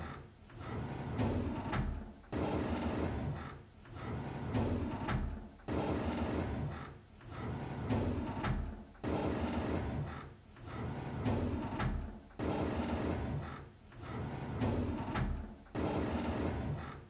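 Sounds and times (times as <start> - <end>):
drawer sliding open: 4.0 - 6.6, 7.3 - 17.0.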